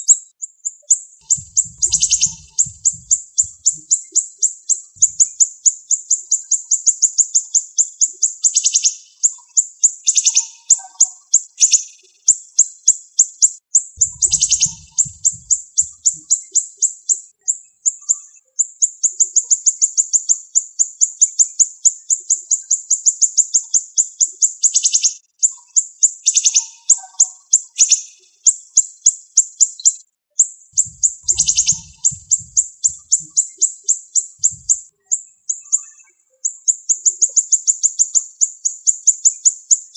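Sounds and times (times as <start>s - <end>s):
songbird trilling: 1.2s - 6.9s, 14.0s - 16.6s, 30.8s - 39.5s.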